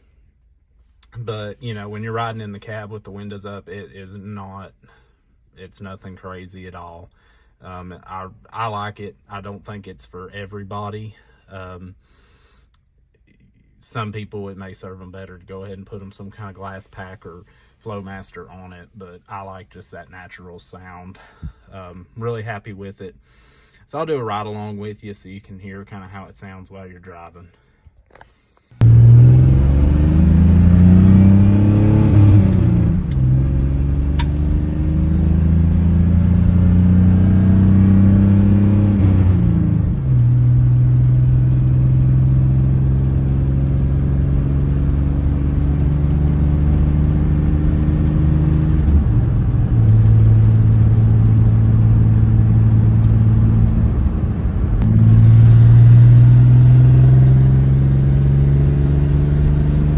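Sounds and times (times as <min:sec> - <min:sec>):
truck engine accelerating: 0:28.8 - 0:59.9.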